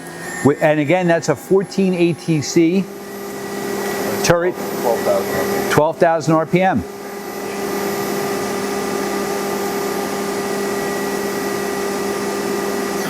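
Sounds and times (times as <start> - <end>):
machine spindle humming: 0.0 - 13.0.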